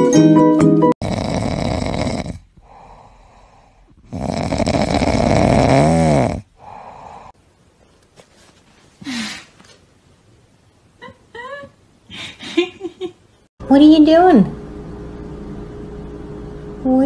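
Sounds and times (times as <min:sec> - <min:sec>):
dog snoring: 0:01.0 - 0:07.4
quiet breath: 0:02.6 - 0:04.1, 0:06.5 - 0:07.4.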